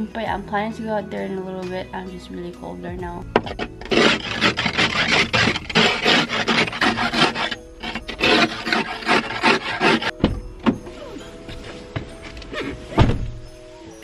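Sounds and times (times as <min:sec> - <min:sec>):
snow scraping: 0:03.4 - 0:14.0.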